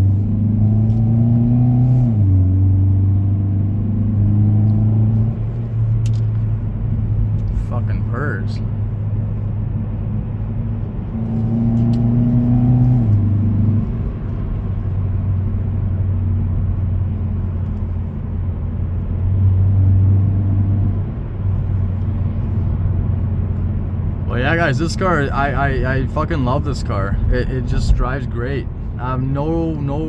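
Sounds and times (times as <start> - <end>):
car engine humming from inside: 0.0 - 30.0
road noise: 0.0 - 30.0.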